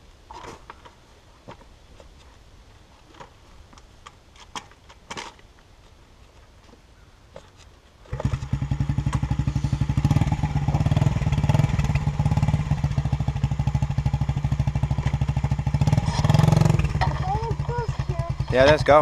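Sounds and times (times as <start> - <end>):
pit bike engine starting and puttering: 8.1 - 19.0.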